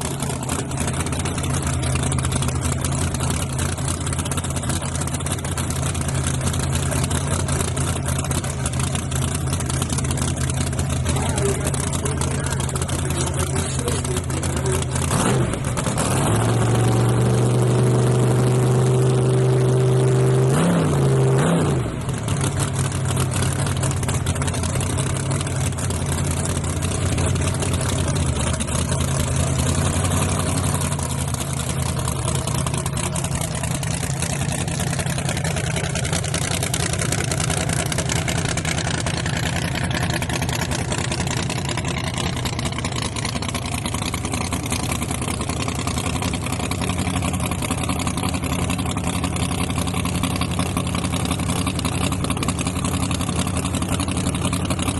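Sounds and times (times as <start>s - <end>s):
truck engine revving high: 10.6s - 24.0s.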